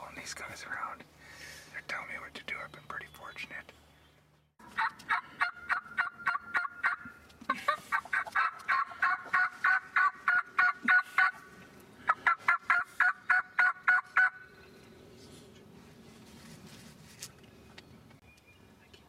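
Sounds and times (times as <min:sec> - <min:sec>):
turkey yelping: 0:04.6 - 0:11.4, 0:12.1 - 0:14.4.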